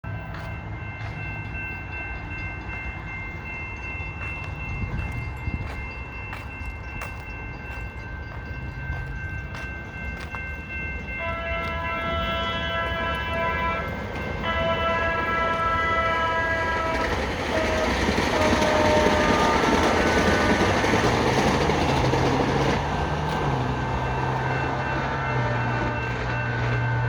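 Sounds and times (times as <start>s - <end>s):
crossing bell ringing: 0.0s - 27.0s
train rumbling: 0.0s - 27.0s
train horn: 11.2s - 21.2s, 24.8s - 27.0s.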